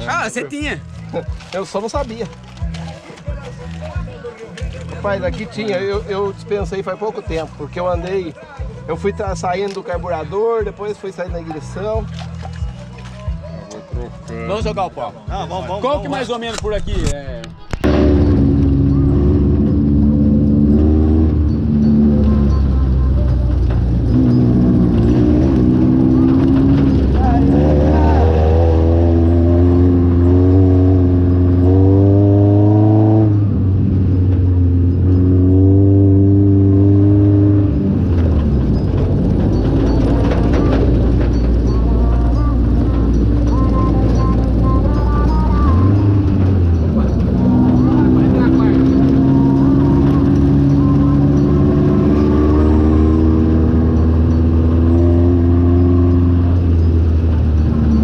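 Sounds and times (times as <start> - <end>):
buggy engine revving under load: 17.8 - 58.0.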